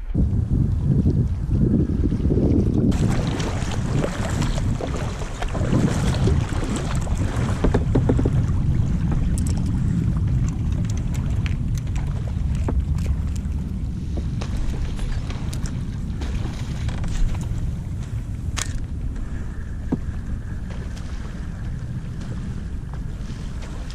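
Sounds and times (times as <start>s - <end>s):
wind rumbling on microphone: 0.0s - 23.9s
small water splashes: 2.9s - 13.6s.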